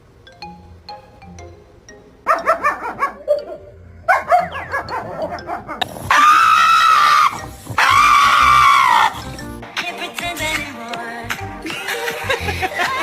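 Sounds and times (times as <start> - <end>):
dog yapping: 2.3 - 9.2
dog long held cry: 4.1 - 9.2.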